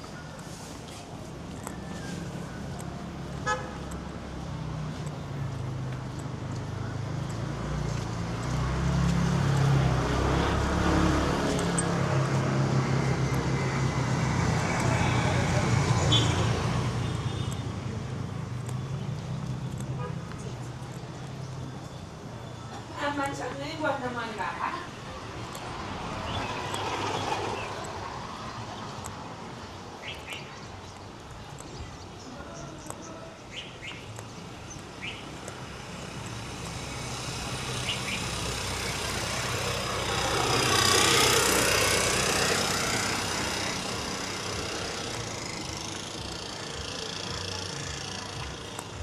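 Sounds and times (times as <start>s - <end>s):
road noise: 0.0s - 49.0s
vehicle engine running close by: 1.6s - 22.3s, 35.0s - 49.0s.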